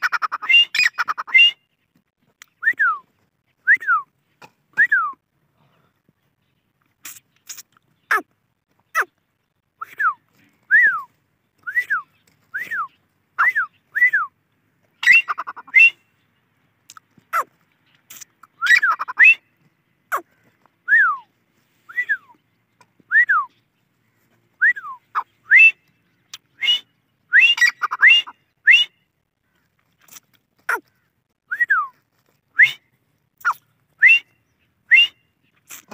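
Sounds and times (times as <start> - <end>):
francolin calling: 15.0 - 16.1, 24.6 - 29.0.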